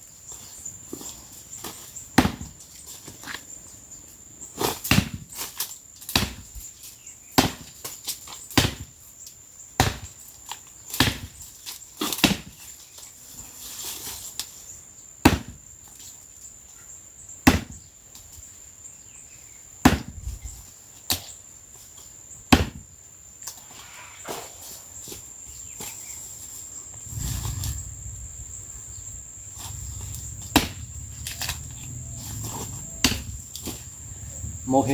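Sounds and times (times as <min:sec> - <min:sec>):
axe chopping dry wood: 0:02.2 - 0:02.6, 0:04.8 - 0:05.3, 0:06.1 - 0:06.5, 0:07.4 - 0:08.9, 0:09.8 - 0:10.2, 0:10.9 - 0:11.4, 0:12.1 - 0:12.6, 0:15.2 - 0:15.7, 0:17.5 - 0:17.8, 0:19.8 - 0:20.3, 0:22.5 - 0:22.9, 0:30.5 - 0:30.8, 0:33.0 - 0:33.4
high insect drone: 0:12.6 - 0:34.9.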